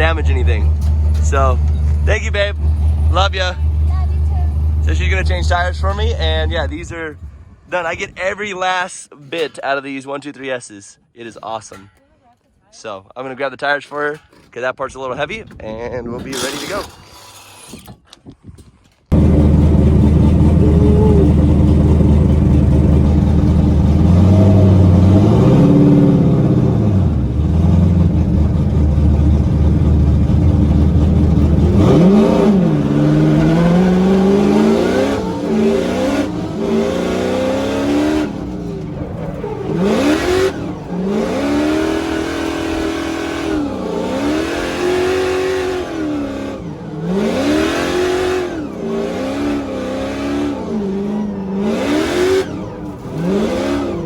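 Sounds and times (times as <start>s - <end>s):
car engine revving: 0.0s - 8.4s, 19.1s - 54.0s.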